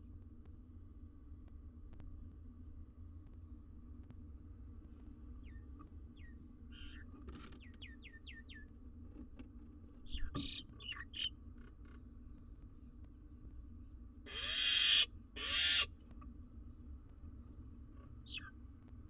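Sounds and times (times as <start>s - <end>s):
harsh rasping bird calls: 6.2s - 8.6s, 10.1s - 11.3s, 14.3s - 15.9s, 18.2s - 18.5s.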